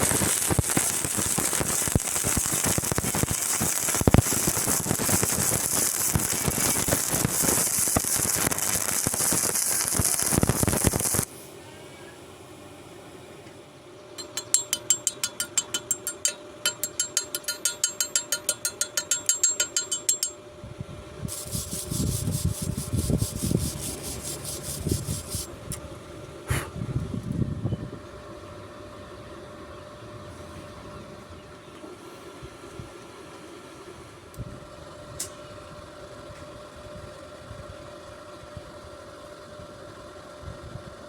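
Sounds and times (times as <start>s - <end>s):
rhythmic scraping on metal: 0.0s - 11.3s, 14.2s - 20.4s, 21.3s - 25.5s
steady hum: 0.0s - 31.6s
sharp metallic knock: 14.2s - 20.4s
rough rasping: 21.3s - 25.5s.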